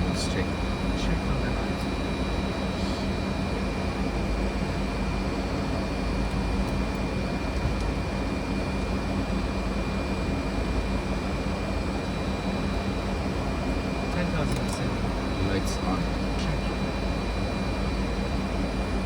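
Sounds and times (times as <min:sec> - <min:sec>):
rumble of airflow and engines: 0:00.0 - 0:19.0.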